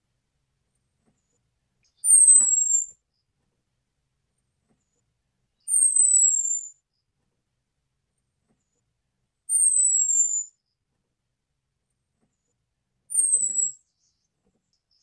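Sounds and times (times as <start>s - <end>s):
bird whistled calls: 2.0s - 2.9s, 5.6s - 6.8s, 9.5s - 10.5s, 13.1s - 14.1s.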